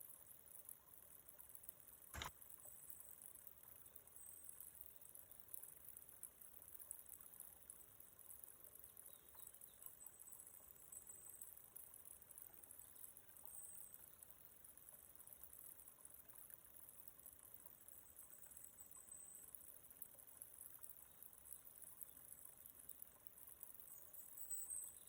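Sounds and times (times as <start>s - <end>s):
sharp click: 2.1s - 2.4s.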